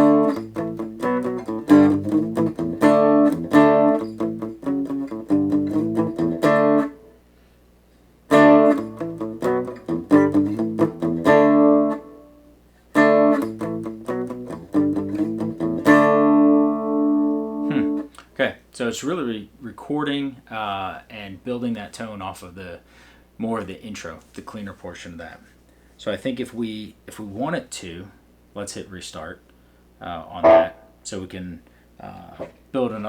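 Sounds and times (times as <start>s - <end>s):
electric guitar chords and notes: 0.0s - 7.1s, 8.3s - 12.3s, 13.0s - 18.1s, 30.4s - 31.0s.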